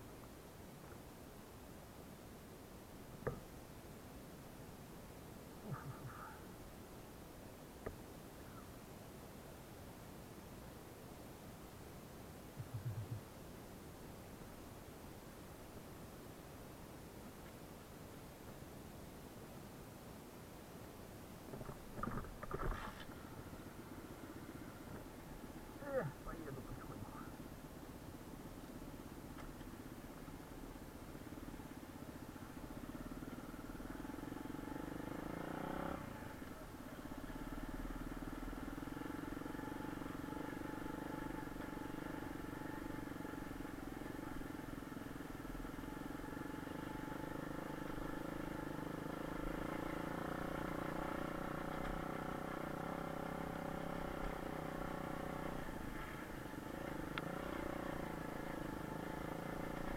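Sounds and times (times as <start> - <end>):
motorbike engine running: 29.2 - 59.9.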